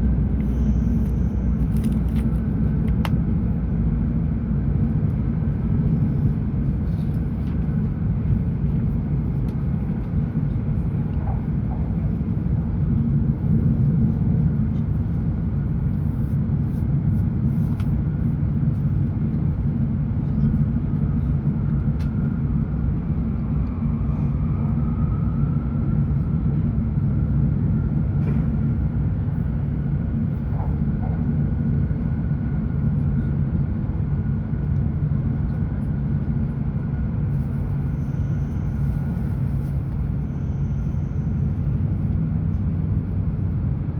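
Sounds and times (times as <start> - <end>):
faint whine: 0.0 - 3.6, 35.4 - 43.5
train cabin low rumble: 0.0 - 43.9.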